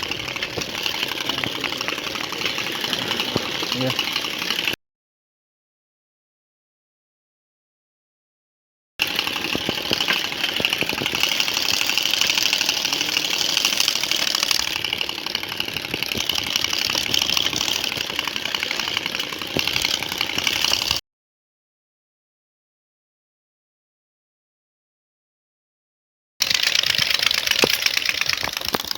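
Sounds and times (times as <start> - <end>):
motorcycle engine running: 0.0 - 4.8, 9.0 - 21.0, 26.4 - 28.9.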